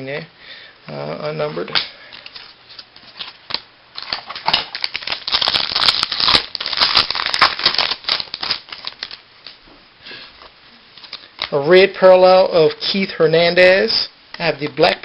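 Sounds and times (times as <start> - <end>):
trading cards clicking and crinkling: 1.7 - 9.6, 10.4 - 11.6.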